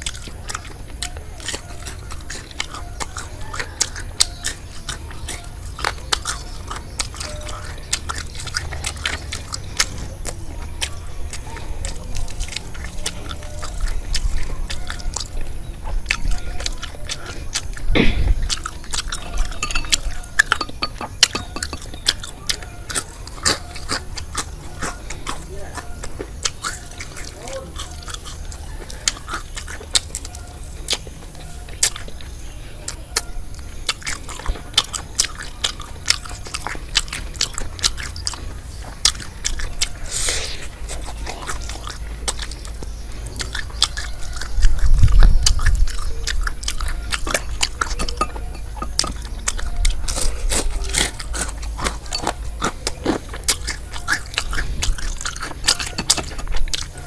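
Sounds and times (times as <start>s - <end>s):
chewing and crunching fried food: 0.0s - 57.0s.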